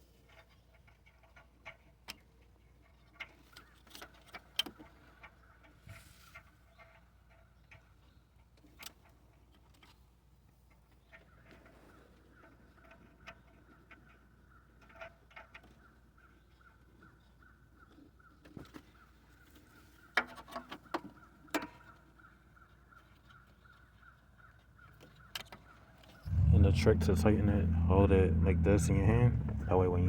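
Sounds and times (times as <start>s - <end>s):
faint pulsing high tone: 26.3s - 30.0s.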